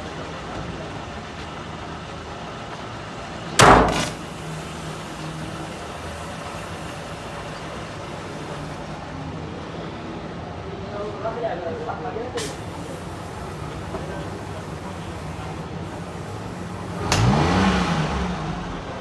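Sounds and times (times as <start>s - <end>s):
loud sudden thump: 3.6s - 4.4s
car engine idling: 12.5s - 19.0s.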